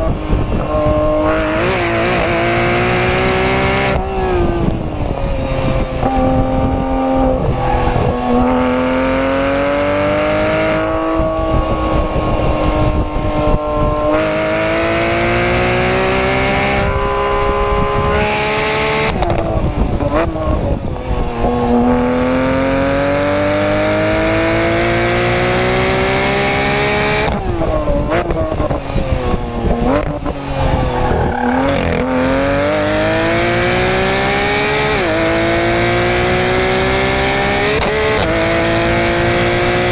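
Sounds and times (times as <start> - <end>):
race car engine revving: 0.0 - 39.9
engine rev blips on downshifts: 5.3 - 20.4, 29.6 - 39.9.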